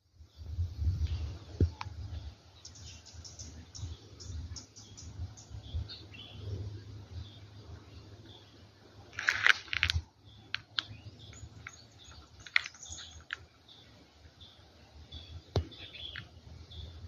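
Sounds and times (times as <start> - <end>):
low steady rumble: 0.1 - 9.2
birds chirping: 0.2 - 17.0.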